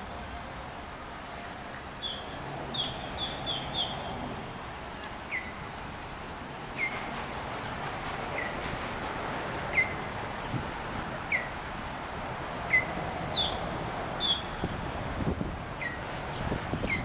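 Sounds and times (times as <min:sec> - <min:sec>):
bird calling: 0:02.0 - 0:04.2, 0:05.3 - 0:05.6, 0:06.8 - 0:07.1, 0:09.7 - 0:10.0, 0:11.3 - 0:14.6.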